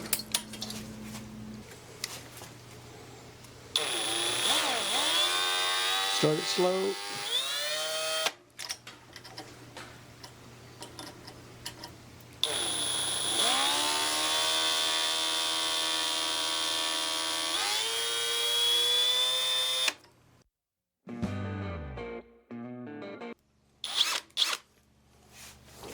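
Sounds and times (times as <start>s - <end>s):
electric drill boring metal: 3.8s - 8.3s, 12.4s - 20.0s, 23.8s - 24.6s.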